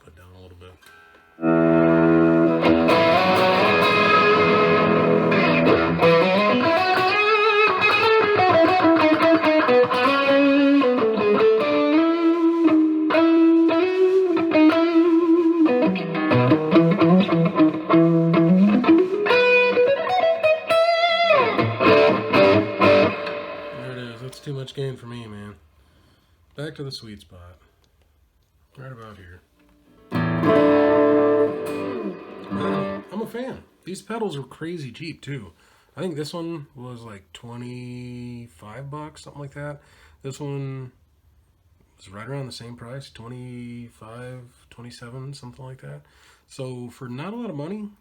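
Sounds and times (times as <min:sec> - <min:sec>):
distorted electric guitar: 0:00.8 - 0:24.4, 0:29.9 - 0:33.6.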